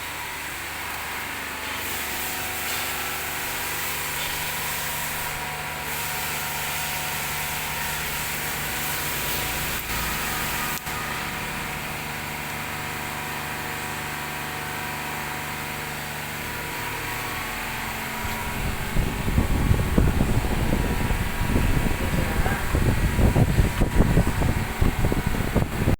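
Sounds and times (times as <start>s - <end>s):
diesel engine idling: 2.9s - 25.9s
uneven low rumbling: 16.5s - 25.9s.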